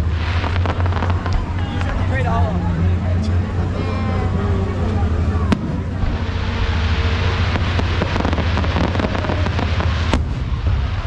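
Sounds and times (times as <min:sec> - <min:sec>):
fireworks bangs: 0:00.0 - 0:02.3, 0:05.5 - 0:11.0
fireworks crackling: 0:00.0 - 0:11.0
steady low rumble: 0:00.0 - 0:11.0.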